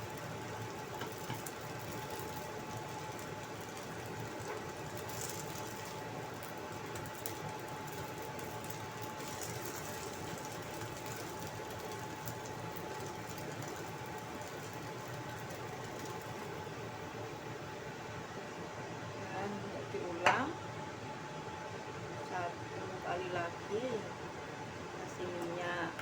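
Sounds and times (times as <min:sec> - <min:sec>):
oil sizzling in a wok: 0:00.0 - 0:18.6.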